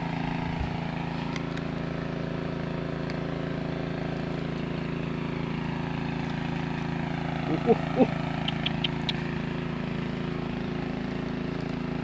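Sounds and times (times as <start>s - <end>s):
small diesel engine running: 0.0s - 12.0s.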